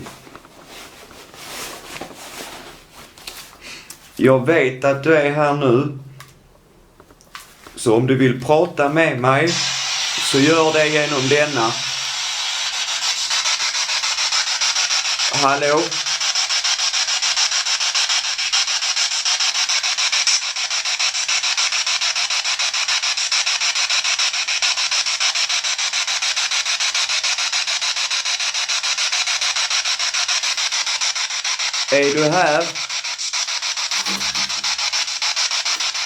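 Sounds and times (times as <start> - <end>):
chopped radio static hiss: 0.0 - 0.5, 7.7 - 21.7, 26.3 - 36.0.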